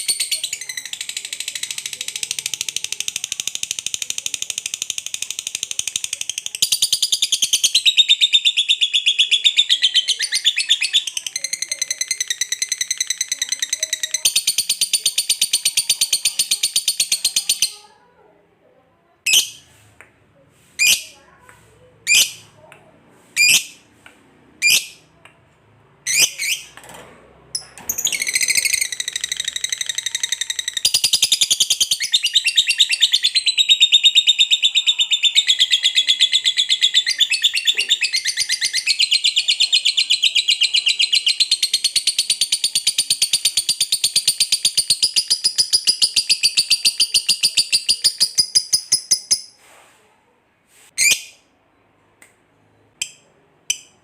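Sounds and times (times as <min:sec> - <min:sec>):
bird rapid chattering trill: 0:00.0 - 0:17.8, 0:24.6 - 0:25.0, 0:27.6 - 0:49.6.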